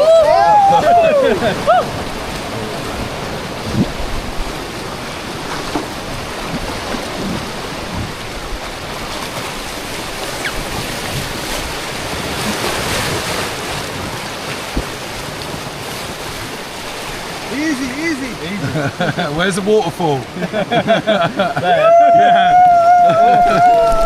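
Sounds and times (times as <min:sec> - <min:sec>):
river rapids rushing: 0:00.0 - 0:24.0.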